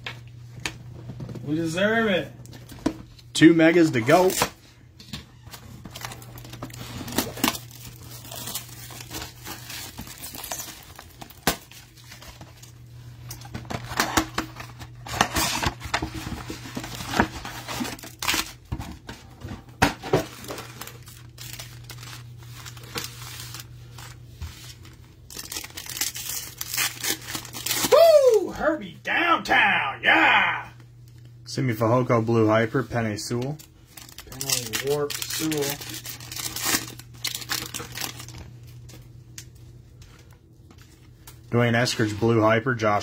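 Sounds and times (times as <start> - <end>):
card packs torn open: 4.0 - 4.6, 5.4 - 18.7, 20.1 - 28.4, 33.4 - 38.8
plastic wrapping crinkling: 5.3 - 18.7, 20.2 - 28.1, 33.5 - 39.5.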